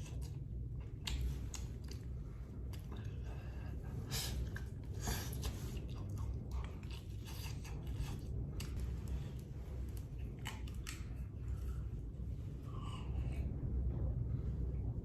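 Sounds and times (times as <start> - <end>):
person chewing: 0.0 - 3.3, 4.2 - 12.0
low rumble: 0.0 - 15.0.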